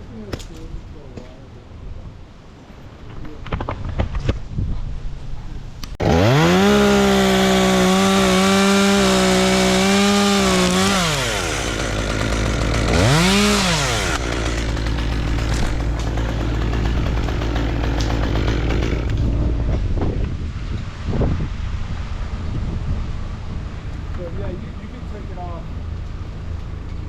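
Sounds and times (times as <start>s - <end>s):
wind noise: 1.8s - 6.0s, 19.0s - 24.8s
chainsaw revving and cutting: 6.0s - 19.6s.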